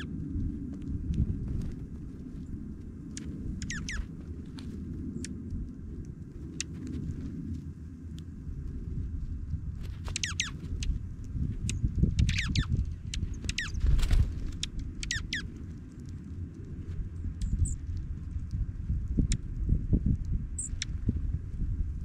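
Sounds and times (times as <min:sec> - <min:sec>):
low rumble: 0:00.0 - 0:22.0
songbirds chirping: 0:01.7 - 0:07.2, 0:10.0 - 0:18.0.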